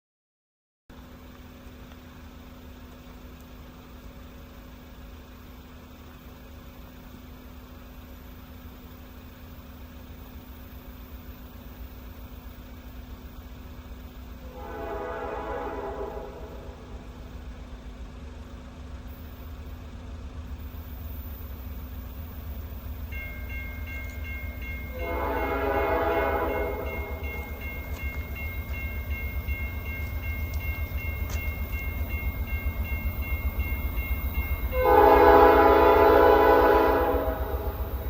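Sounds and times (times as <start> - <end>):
diesel engine throbbing: 1.0 - 38.0
locomotive air horn blasts: 14.4 - 17.0, 24.9 - 28.0, 34.7 - 38.0
thin high tone: 21.2 - 35.0.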